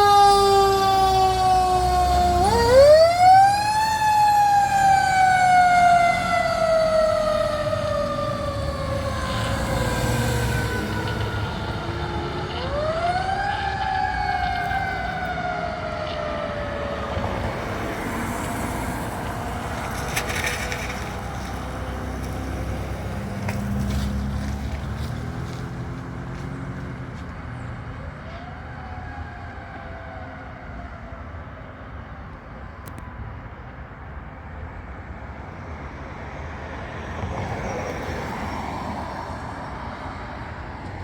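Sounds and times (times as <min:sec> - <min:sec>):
truck engine rumbling: 0:00.0 - 0:28.9
fire truck siren wailing: 0:00.0 - 0:33.4.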